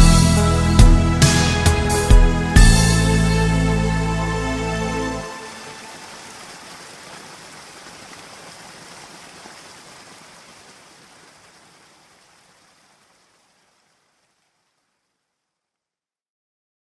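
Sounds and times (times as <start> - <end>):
rain hissing: 5.1 - 15.2.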